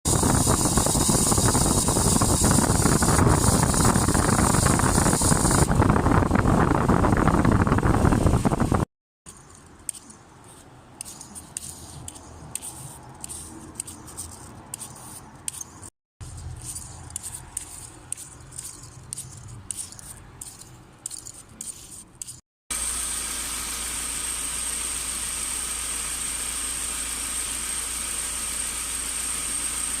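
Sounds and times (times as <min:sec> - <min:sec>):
high-pitched bearing noise: 0:09.3 - 0:22.4.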